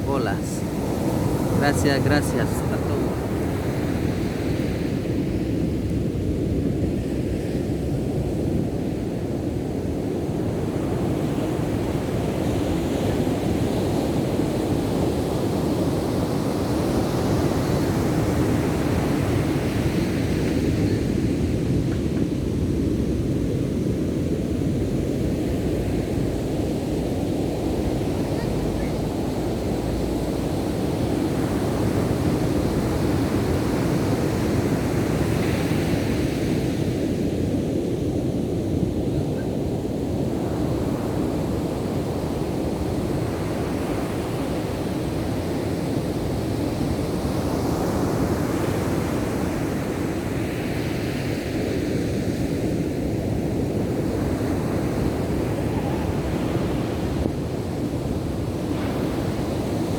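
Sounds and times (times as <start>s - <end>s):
waves breaking: 0.0s - 5.8s, 10.6s - 37.2s.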